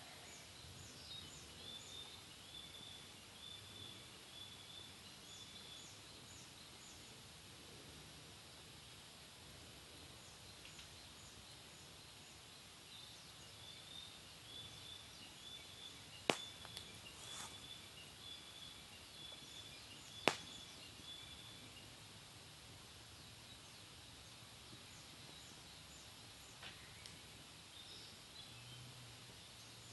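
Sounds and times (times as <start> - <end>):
wood fire burning: 5.6 - 28.2
burning wood popping: 16.0 - 18.1, 19.2 - 20.9.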